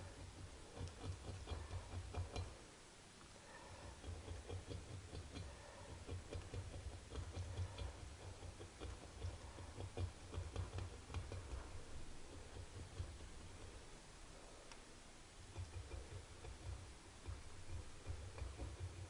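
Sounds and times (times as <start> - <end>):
hand tool scraping metal: 3.6 - 13.8.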